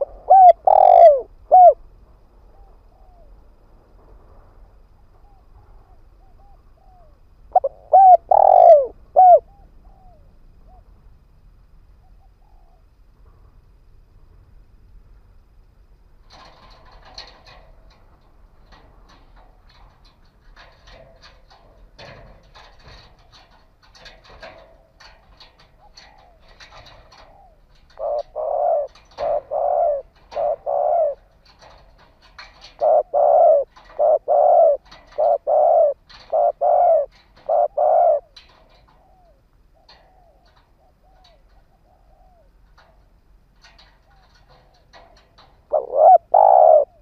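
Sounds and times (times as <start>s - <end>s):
dove cooing: 0.0s - 1.8s, 5.2s - 10.9s, 20.6s - 43.0s, 43.6s - 47.0s.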